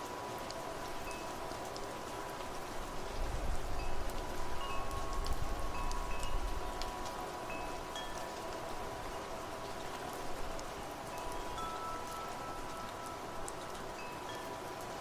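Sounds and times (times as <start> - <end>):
rain hissing: 0.0 - 15.0
wind chimes ringing: 1.0 - 1.4, 3.8 - 9.6, 11.1 - 14.9.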